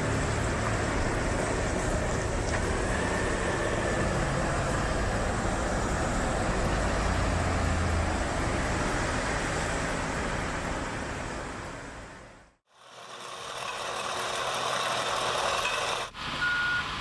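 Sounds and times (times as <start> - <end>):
low engine hum: 0.0 - 12.6
road noise rush: 0.0 - 17.0.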